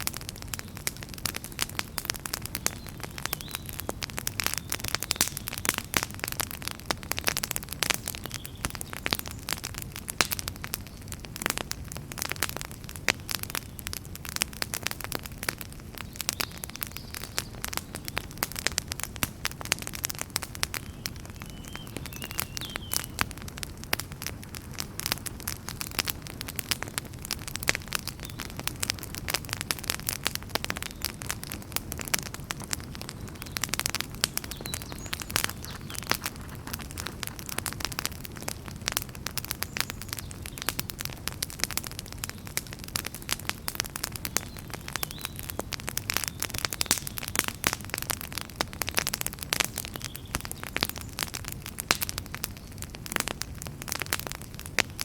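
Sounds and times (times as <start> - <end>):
wood fire crackling and popping: 0.0 - 55.0
steady low hiss: 28.7 - 40.4.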